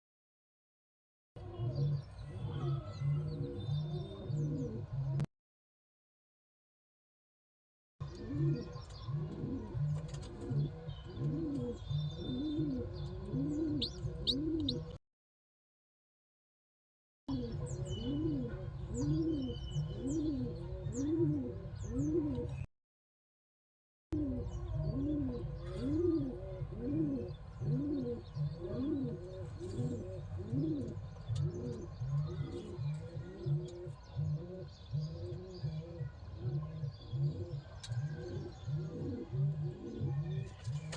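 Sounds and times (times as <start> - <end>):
pigeons cooing: 1.4 - 5.3, 8.0 - 15.0, 17.3 - 22.7, 24.2 - 40.9.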